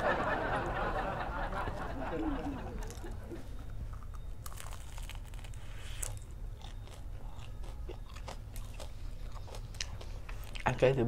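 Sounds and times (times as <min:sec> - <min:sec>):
biting and chewing fried food: 0:02.8 - 0:11.0
crisp crunches of fried crust: 0:03.9 - 0:11.0.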